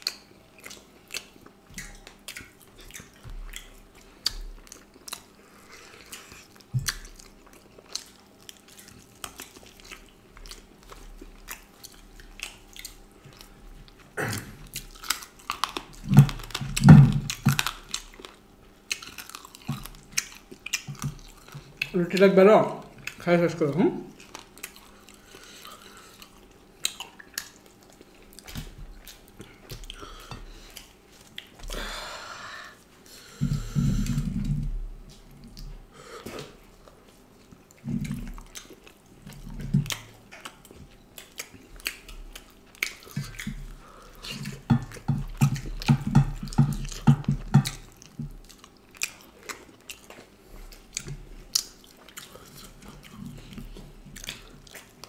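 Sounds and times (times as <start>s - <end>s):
lip smacks: 0.0s - 13.6s, 37.5s - 55.0s
wet chewing: 0.0s - 31.9s, 32.7s - 55.0s.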